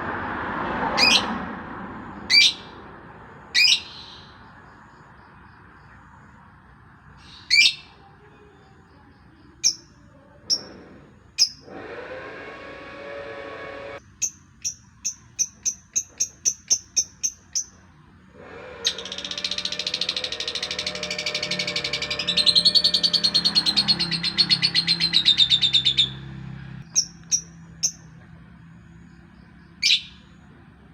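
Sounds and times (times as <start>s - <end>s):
songbird calling and singing: 1.0s - 1.4s, 3.6s - 6.3s, 7.0s - 10.8s, 14.1s - 17.9s, 18.9s - 30.6s.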